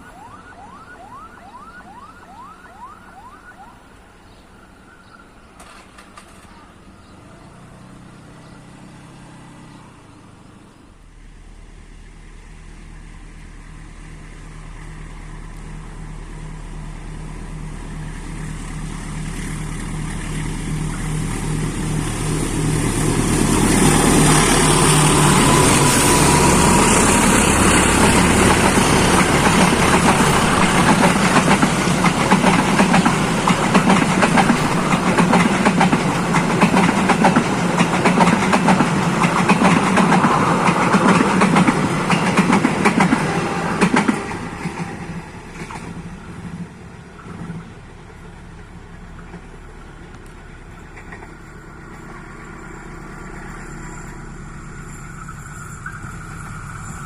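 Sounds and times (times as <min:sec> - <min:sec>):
locomotive engine hum: 0:00.0 - 0:57.0
train wheels clattering: 0:22.2 - 0:57.0.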